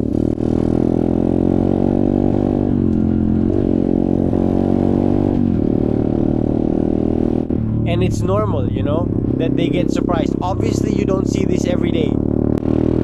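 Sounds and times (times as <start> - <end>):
dirt bike engine running: 5.6 - 13.0.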